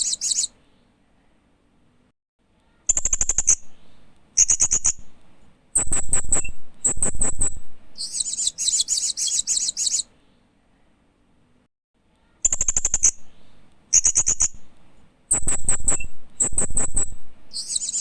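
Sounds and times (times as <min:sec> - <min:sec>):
parrot chirping and chattering: 0:05.8 - 0:10.1, 0:15.3 - 0:18.0.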